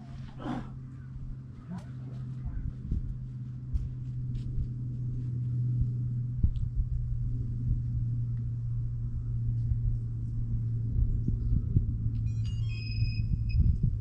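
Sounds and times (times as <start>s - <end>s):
quadcopter motors humming: 0.0s - 14.0s.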